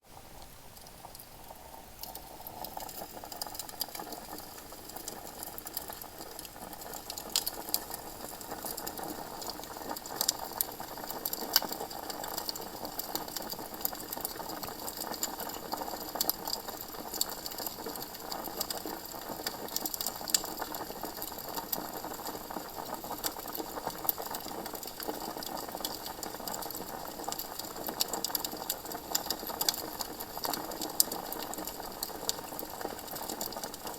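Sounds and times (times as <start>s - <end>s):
campfire crackling: 0.8s - 16.2s.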